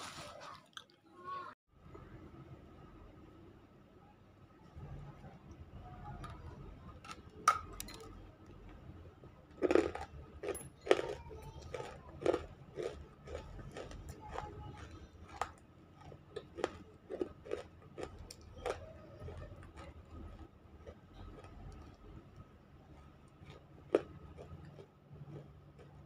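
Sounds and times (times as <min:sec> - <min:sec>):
crunchy chewing: 0:09.5 - 0:26.0.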